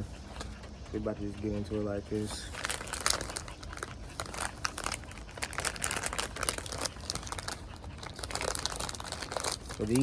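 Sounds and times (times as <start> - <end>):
plastic packaging crinkling: 2.5 - 10.0.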